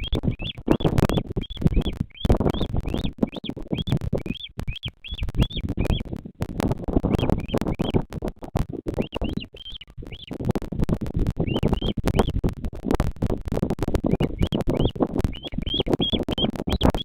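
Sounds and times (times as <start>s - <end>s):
bird chirping: 0.0s - 6.1s, 7.1s - 8.0s, 8.9s - 10.4s, 11.4s - 12.4s, 14.0s - 17.0s
microphone crackling and rumbling: 0.0s - 17.0s.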